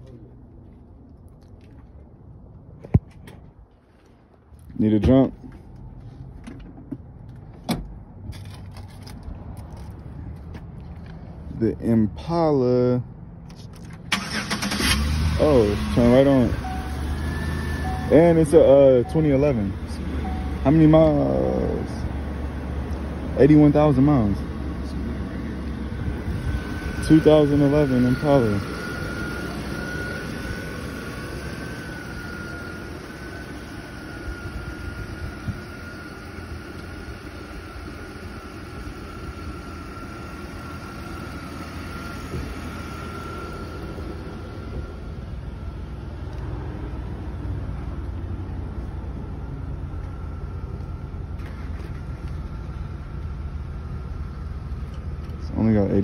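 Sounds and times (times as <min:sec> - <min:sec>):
car engine idling: 0:00.0 - 0:56.0
thin high whine: 0:25.9 - 0:38.5.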